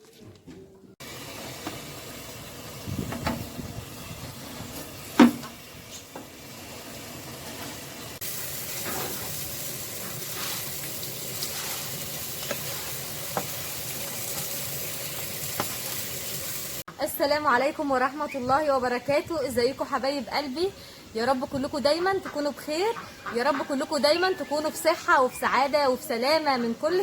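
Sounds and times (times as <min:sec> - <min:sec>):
fish sizzling on a grill: 0:04.7 - 0:16.8.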